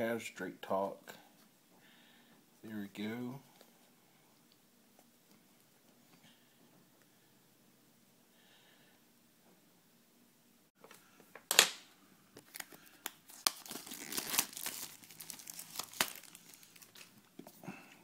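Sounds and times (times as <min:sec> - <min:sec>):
packaging ripping: 0:12.4 - 0:17.3
packaging crinkling: 0:12.4 - 0:17.4.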